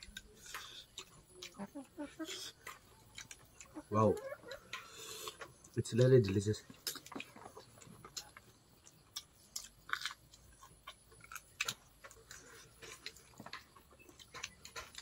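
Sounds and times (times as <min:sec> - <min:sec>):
faint chewing: 0:00.0 - 0:15.0.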